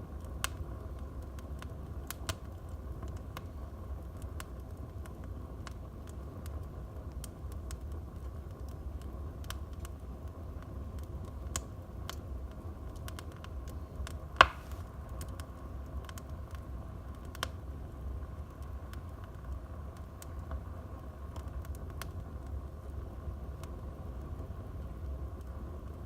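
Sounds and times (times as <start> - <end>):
low rumble of fire: 0.0 - 26.0
wood fire crackling: 0.0 - 26.0
loud sharp fire pop: 14.4 - 14.8.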